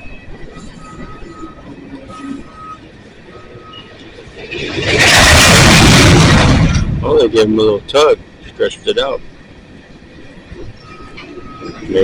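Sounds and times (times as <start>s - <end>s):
freight train low rumble: 0.0s - 12.0s
faint squealing tones: 10.5s - 12.0s.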